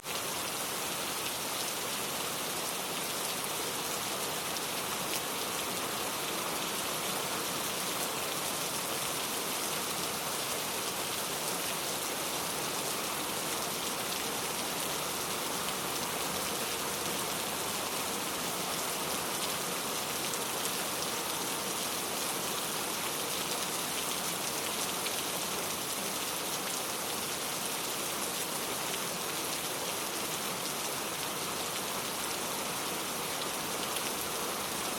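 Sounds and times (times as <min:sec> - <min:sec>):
rain pattering on a surface: 0:00.1 - 0:34.9.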